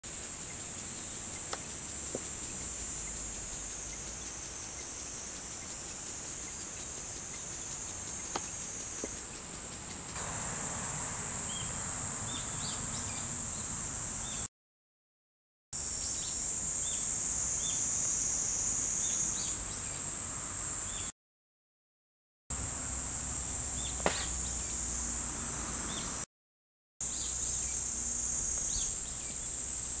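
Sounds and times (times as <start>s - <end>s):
insects shrilling: 0.1s - 14.4s.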